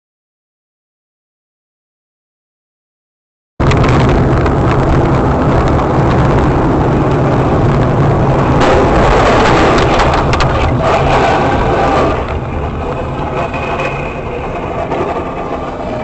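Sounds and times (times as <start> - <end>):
vehicle road and engine rumble: 3.6 - 16.0.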